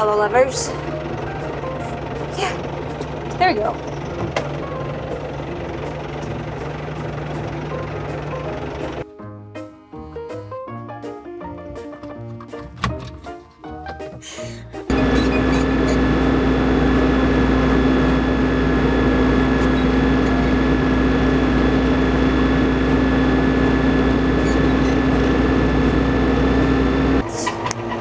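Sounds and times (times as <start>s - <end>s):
tractor engine droning: 0.0s - 9.0s, 14.8s - 27.3s.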